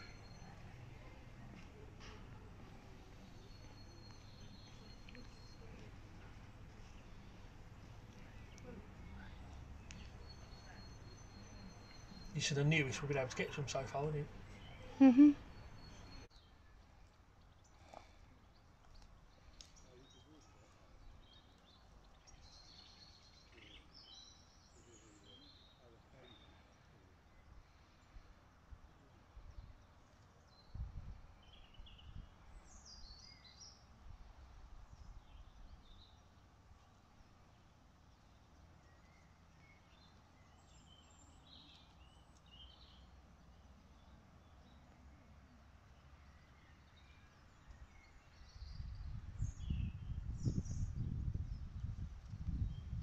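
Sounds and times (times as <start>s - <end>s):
birds chirping: 0.0s - 28.2s
faint outdoor background noise: 0.0s - 53.0s.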